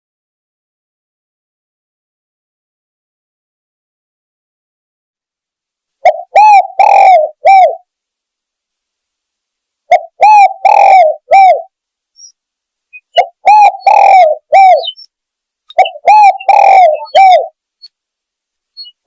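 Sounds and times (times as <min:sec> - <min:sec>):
dove cooing: 0:06.0 - 0:07.8, 0:09.9 - 0:12.3, 0:13.0 - 0:15.0, 0:15.7 - 0:17.6.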